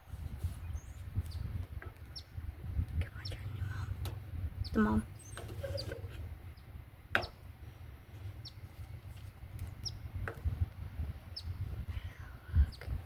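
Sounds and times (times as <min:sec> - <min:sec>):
low microphone rumble: 0:00.0 - 0:13.0
small bird chirping: 0:00.6 - 0:04.0, 0:04.6 - 0:07.5, 0:08.4 - 0:08.8, 0:09.7 - 0:10.1, 0:11.3 - 0:11.7.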